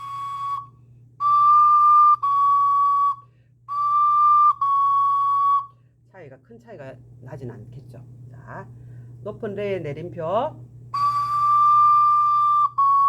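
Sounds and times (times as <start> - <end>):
ocarina held notes: 0.0 - 5.7, 10.9 - 13.0.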